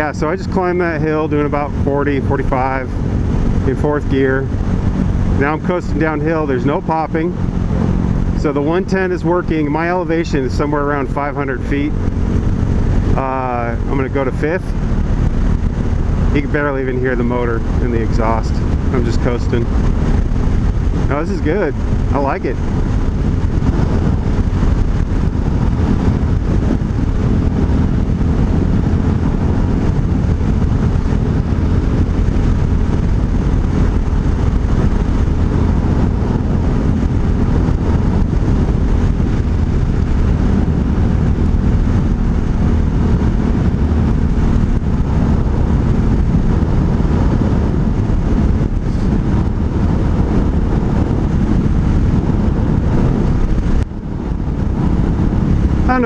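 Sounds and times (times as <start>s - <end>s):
motorcycle engine running low: 0.0s - 56.0s
road and wind rush: 0.0s - 56.0s.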